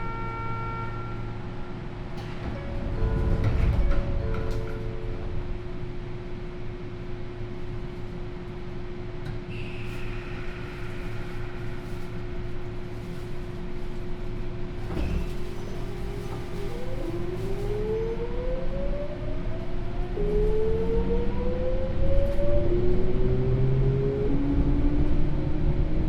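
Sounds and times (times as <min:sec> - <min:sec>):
train equipment hum: 0:00.0 - 0:26.0
train inverter rising whine: 0:16.3 - 0:26.0.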